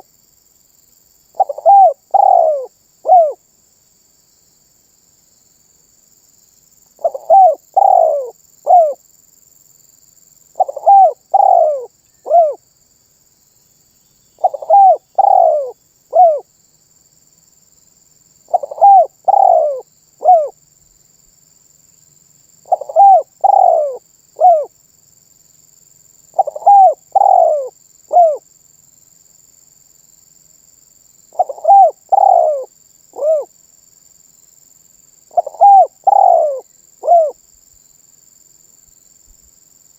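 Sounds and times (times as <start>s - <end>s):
dove cooing: 1.4s - 3.4s, 7.0s - 9.0s, 10.6s - 12.6s, 14.4s - 16.4s, 18.5s - 20.6s, 22.7s - 24.7s, 26.4s - 28.4s, 31.4s - 33.5s, 35.3s - 37.4s.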